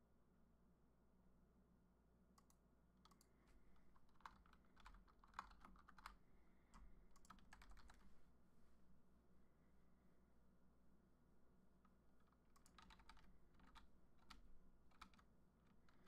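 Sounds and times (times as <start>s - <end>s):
typing on computer keyboard: 2.4s - 3.3s, 3.9s - 6.2s, 6.8s - 8.1s, 12.2s - 16.0s.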